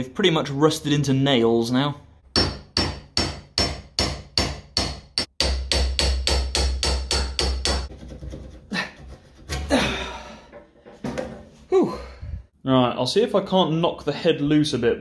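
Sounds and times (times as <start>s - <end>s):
chisel tapping on metal: 2.3s - 7.9s.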